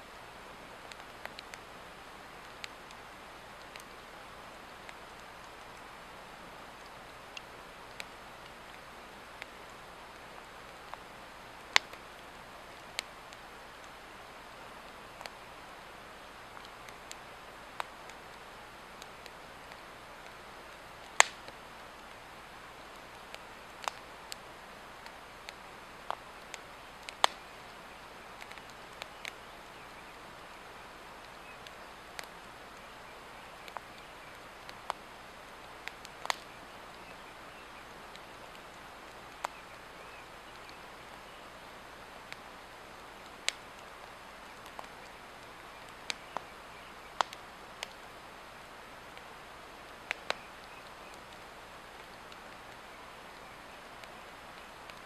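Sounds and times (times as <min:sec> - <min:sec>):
log fire crackling: 0:00.0 - 0:55.0
steady background hiss: 0:00.0 - 0:55.0
loud wood snap: 0:21.1 - 0:21.6, 0:26.1 - 0:27.4, 0:35.8 - 0:36.5.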